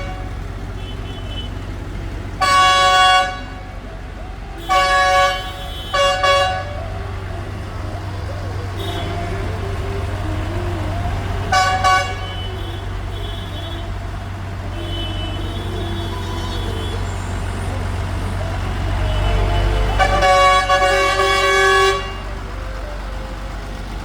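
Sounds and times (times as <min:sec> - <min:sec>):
vehicle horns tooting: 0:00.0 - 0:23.0
tractor engines rumbling: 0:00.0 - 0:24.0.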